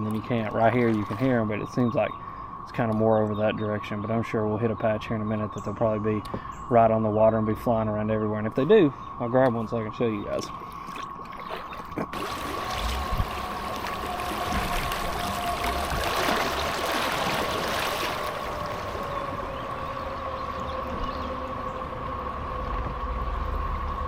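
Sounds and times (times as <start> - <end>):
cicadas droning: 0.0 - 24.0
rushing river water: 11.5 - 20.1.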